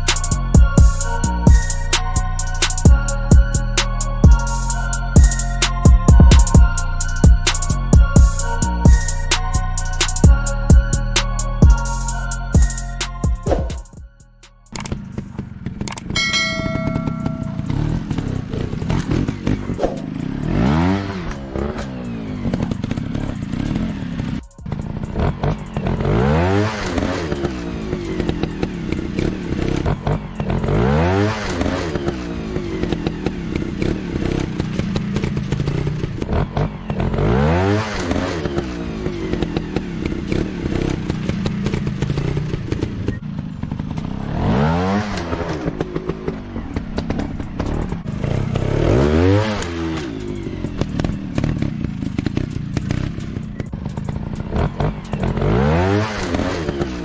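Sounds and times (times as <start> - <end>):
dirt bike engine revving: 14.7 - 57.0.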